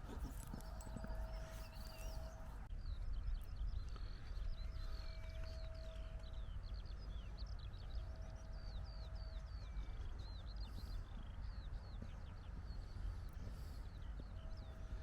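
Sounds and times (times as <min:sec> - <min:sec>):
small birds chirping and singing: 0:00.0 - 0:05.6.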